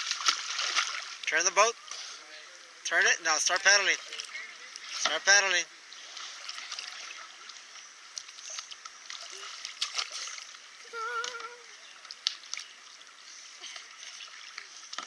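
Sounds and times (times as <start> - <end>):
paddles splashing in water: 0.0 - 2.2, 2.9 - 15.0
moving water: 0.0 - 15.0
water drips: 3.5 - 10.6, 11.2 - 15.0.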